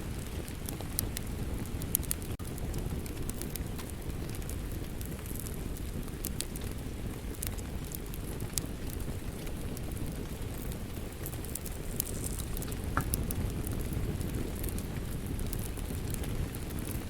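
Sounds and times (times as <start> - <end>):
wood fire crackling and popping: 0.0 - 17.0
rain hissing: 9.6 - 16.4.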